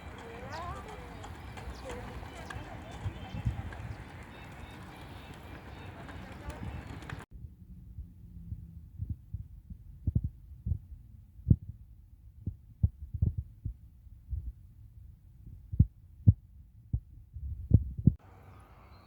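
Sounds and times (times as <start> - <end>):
muffled low thumps: 7.4 - 18.2.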